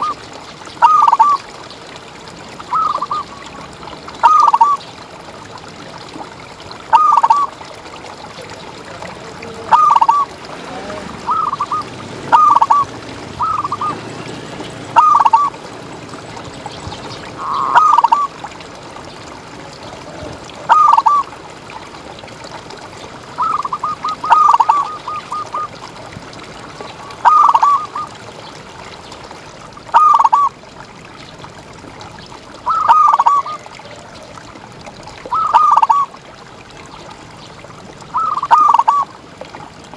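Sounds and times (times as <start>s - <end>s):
dove cooing: 8.9s - 18.4s, 19.8s - 21.3s, 23.4s - 25.8s, 35.3s - 36.1s, 38.2s - 39.1s.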